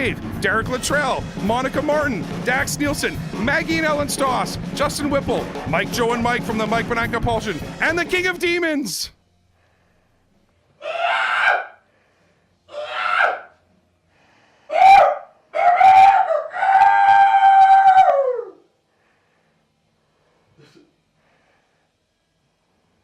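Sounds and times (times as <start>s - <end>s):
person screaming: 10.8s - 11.8s, 12.7s - 13.5s, 14.7s - 18.6s
person shouting: 12.7s - 13.5s.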